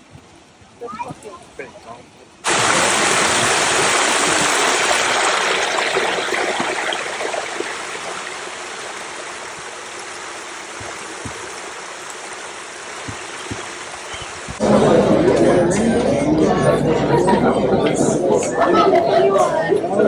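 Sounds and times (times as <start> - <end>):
rushing water: 0.0 - 15.2.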